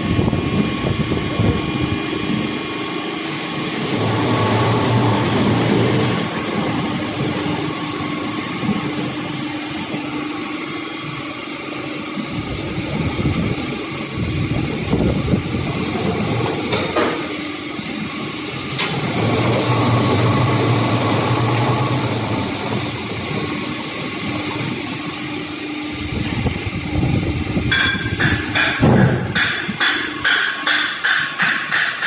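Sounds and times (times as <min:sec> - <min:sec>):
metal shredder grinding: 0:00.5 - 0:32.0
sharp knocks: 0:27.7 - 0:32.0.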